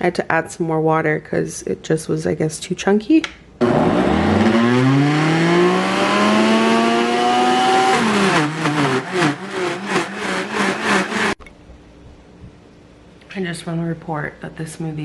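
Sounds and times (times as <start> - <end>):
blender motor running: 3.6 - 11.4.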